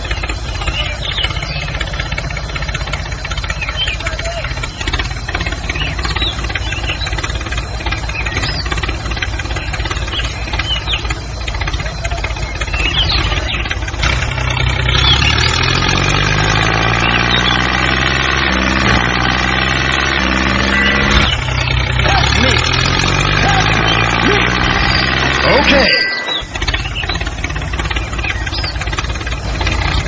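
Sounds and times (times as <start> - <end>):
engine running rough and rattling: 0.0 - 30.0
short high chirps: 20.7 - 21.5, 25.5 - 27.0.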